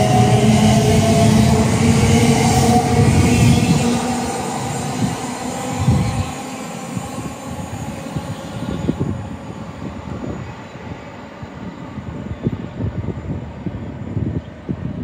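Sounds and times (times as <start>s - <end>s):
electric train hissing: 0.0s - 12.0s
wind buffeting microphone: 0.0s - 15.0s.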